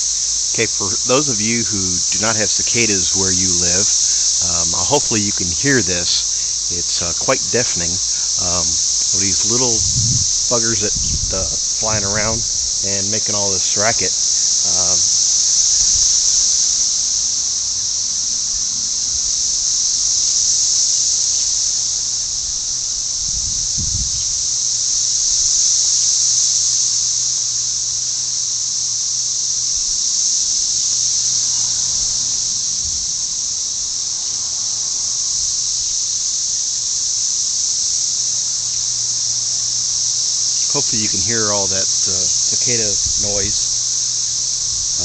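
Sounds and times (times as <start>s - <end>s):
cicadas droning in chorus: 0.0s - 45.0s.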